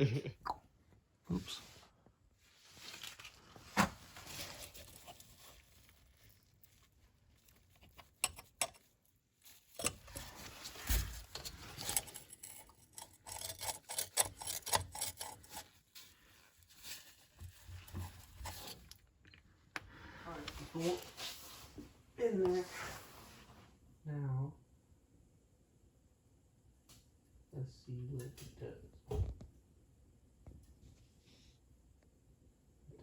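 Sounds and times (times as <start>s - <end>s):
hand tools clicking and clinking: 7.8s - 8.9s, 9.7s - 15.8s.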